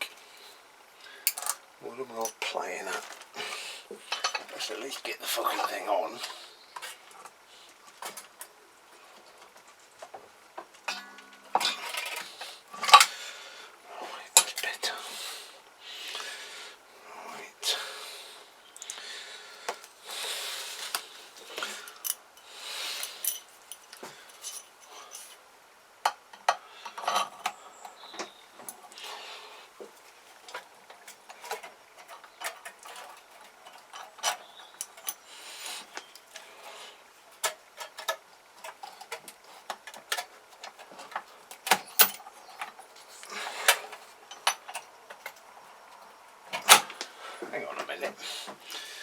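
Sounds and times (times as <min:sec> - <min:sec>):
metallic clicks and clinks: 0:23.0 - 0:25.4, 0:37.4 - 0:47.0.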